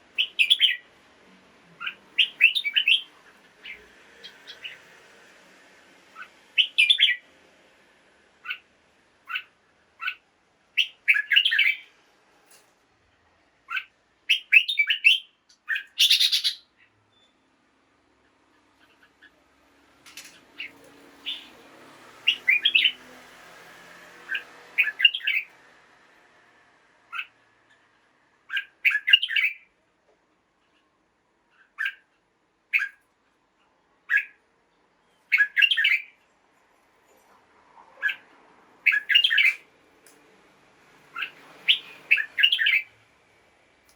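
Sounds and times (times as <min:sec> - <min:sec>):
bird singing whistled phrases: 0:00.2 - 0:00.8, 0:01.8 - 0:03.8, 0:06.6 - 0:07.2, 0:10.8 - 0:11.9, 0:13.7 - 0:17.3, 0:21.2 - 0:21.5, 0:22.3 - 0:23.0, 0:24.3 - 0:25.5, 0:28.6 - 0:29.6, 0:35.3 - 0:36.1, 0:38.9 - 0:39.6, 0:41.2 - 0:42.9.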